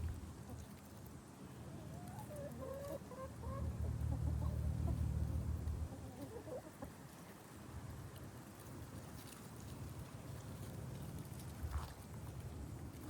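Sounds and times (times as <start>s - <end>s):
hens clucking: 2.0s - 7.0s.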